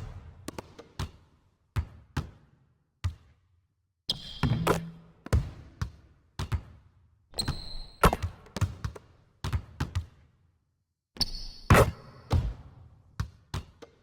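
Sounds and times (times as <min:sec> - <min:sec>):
sharp knocks or bounces: 0:04.4 - 0:05.1.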